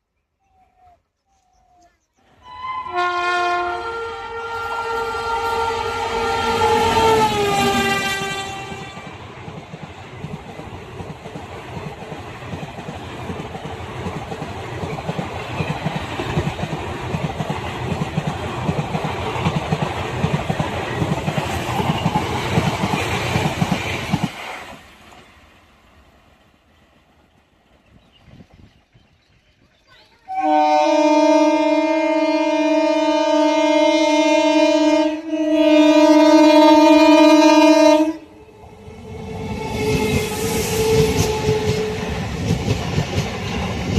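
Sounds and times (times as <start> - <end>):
train horn chord: 2.4 - 9.1, 30.3 - 38.3
train wheels clattering over rail joints: 9.5 - 25.3.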